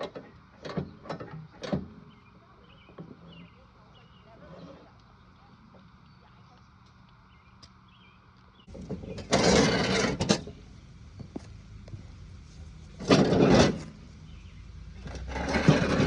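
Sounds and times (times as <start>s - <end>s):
loud scraping or rushing bursts: 9.2s - 10.4s, 15.1s - 16.0s.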